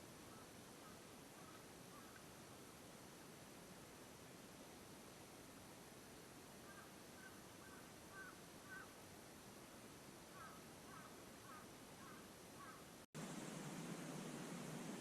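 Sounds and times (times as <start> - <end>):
background hiss: 0.0 - 15.0
faint bird calls: 0.1 - 2.4, 6.6 - 9.0, 10.2 - 15.0.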